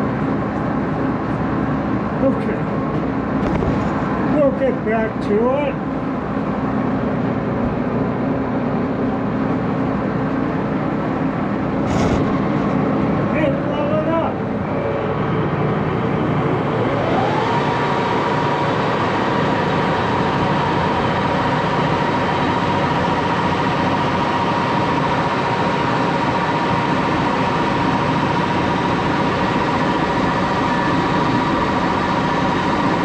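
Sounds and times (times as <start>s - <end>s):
lathe whining: 14.4s - 33.0s.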